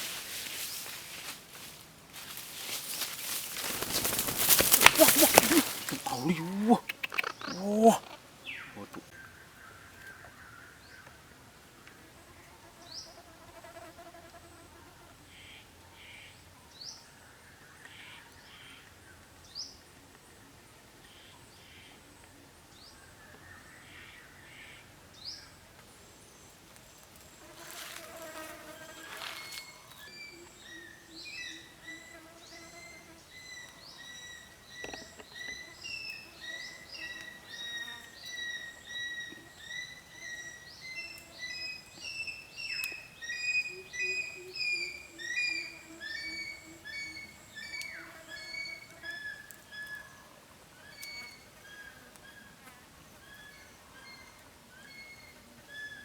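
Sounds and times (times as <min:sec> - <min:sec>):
birds chirping: 0:02.3 - 0:11.3.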